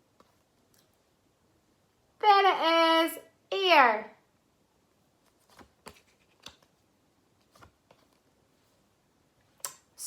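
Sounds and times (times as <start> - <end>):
paper cards rustling and clicking: 5.2 - 8.4.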